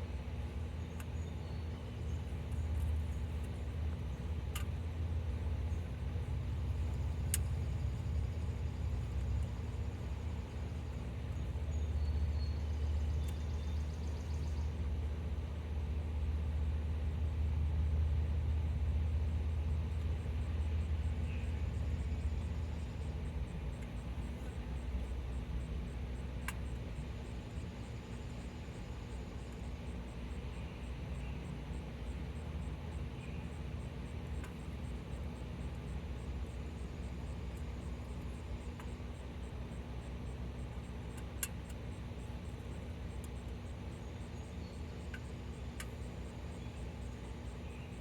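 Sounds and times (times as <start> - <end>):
faint sharp ticks: 4.5 - 4.8, 7.2 - 7.8, 26.4 - 26.8, 41.1 - 41.9.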